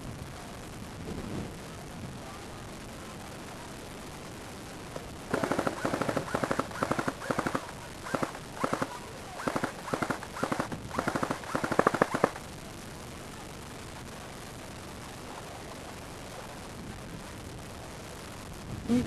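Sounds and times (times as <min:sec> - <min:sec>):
airsoft gun firing bursts: 0:05.3 - 0:12.5.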